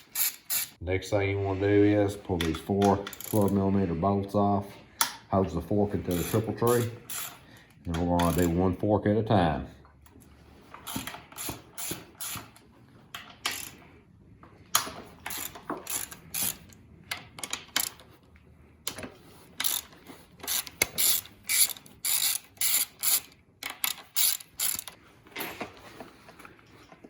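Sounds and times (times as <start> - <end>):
ratchet wrench clicking: 0.0 - 0.8, 3.1 - 3.4, 6.1 - 7.4, 10.9 - 12.6, 13.4 - 13.8, 15.2 - 16.8, 17.4 - 18.0, 19.6 - 25.0.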